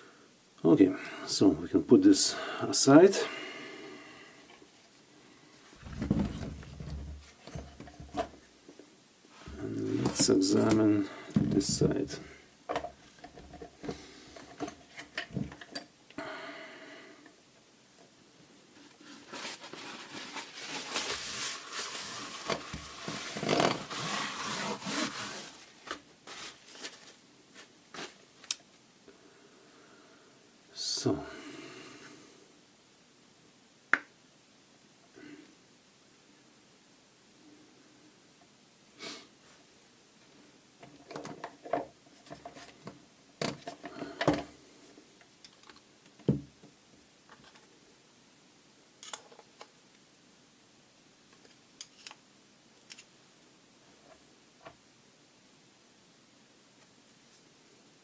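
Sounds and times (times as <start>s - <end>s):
tools rubbing and scraping: 18.8s - 26.6s.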